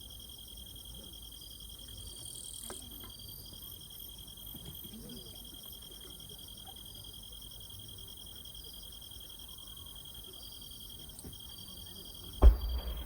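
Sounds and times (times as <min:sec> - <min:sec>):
crickets chirring: 0:00.0 - 0:13.0
distant voices murmuring: 0:12.4 - 0:13.0.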